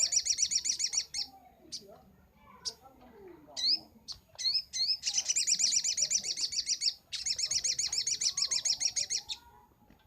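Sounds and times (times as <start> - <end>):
bird rising chirps: 0.0 - 1.8, 4.4 - 9.5
bird high-pitched trills: 0.0 - 2.9, 3.6 - 9.6.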